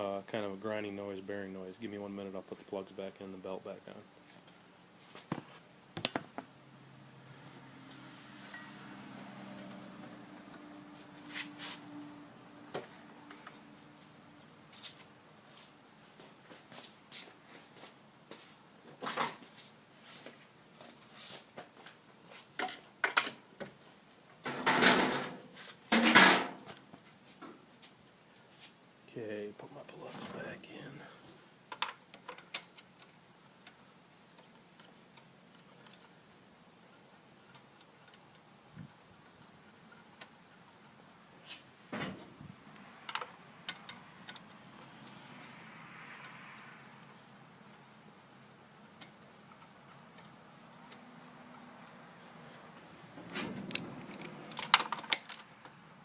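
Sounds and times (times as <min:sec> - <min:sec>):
hand tools clicking and knocking: 0:53.7 - 0:55.8.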